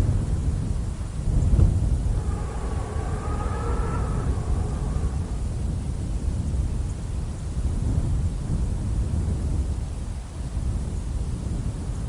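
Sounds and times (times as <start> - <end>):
low rumbling noise: 0.0 - 8.0.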